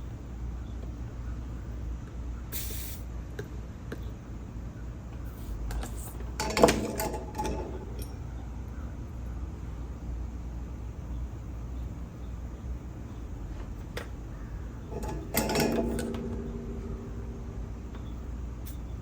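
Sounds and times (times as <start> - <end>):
brief hiss: 2.5 - 3.1
low hum: 14.1 - 19.0
metal tools clinking: 14.9 - 18.8.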